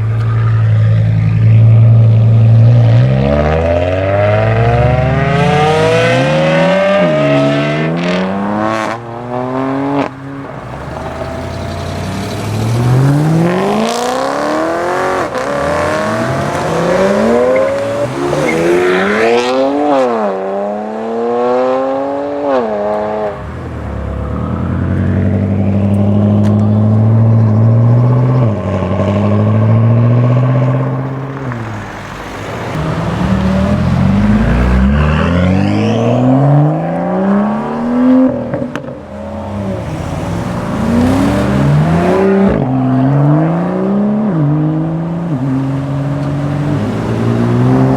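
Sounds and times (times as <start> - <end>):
cars accelerating hard: 0.0 - 47.9.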